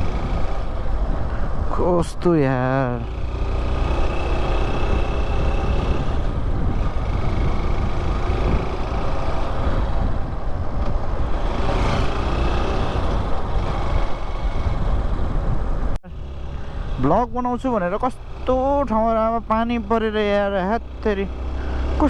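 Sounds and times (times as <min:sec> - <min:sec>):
wind rush on microphone: 0:00.0 - 0:17.7
motorcycle engine running: 0:00.0 - 0:22.0.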